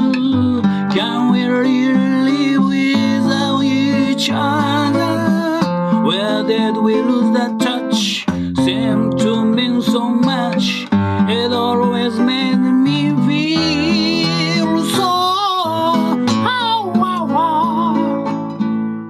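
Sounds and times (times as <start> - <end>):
person singing: 0.0 - 18.4
acoustic guitar strumming: 0.0 - 19.0.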